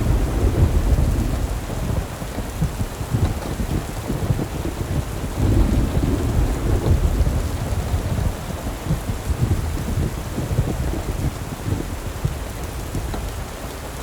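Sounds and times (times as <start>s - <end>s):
deep flickering rumble: 0.0s - 2.0s
rain hiss: 0.0s - 14.0s.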